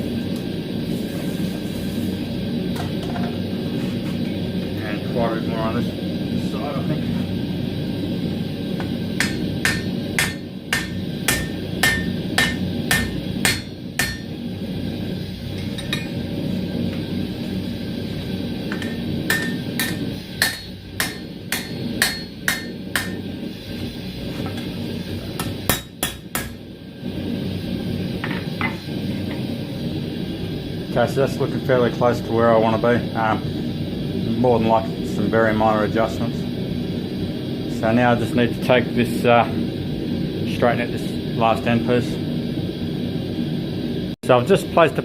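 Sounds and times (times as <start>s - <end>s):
steady low rumble: 2.2s - 44.2s
hammer ringing on steel and anvil: 9.2s - 14.3s, 18.8s - 23.2s, 25.4s - 26.6s.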